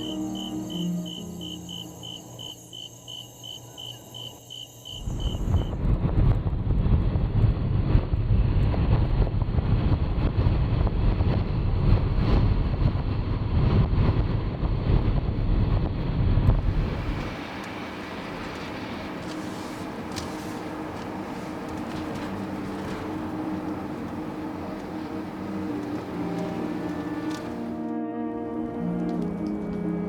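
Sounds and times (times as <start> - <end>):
insect-like chirping: 0.0 - 5.7
car driving: 16.4 - 27.8.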